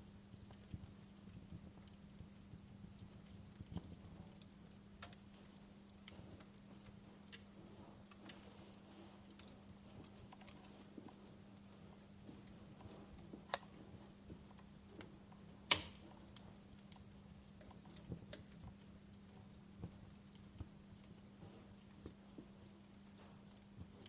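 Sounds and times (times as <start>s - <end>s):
faint low hum: 0.0s - 24.0s
wood fire crackling: 0.0s - 24.0s.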